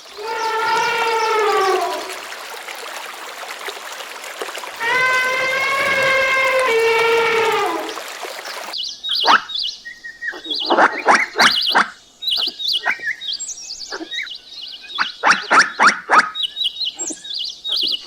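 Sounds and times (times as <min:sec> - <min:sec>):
animal calls sweeping down: 0:00.1 - 0:02.3, 0:04.8 - 0:08.0.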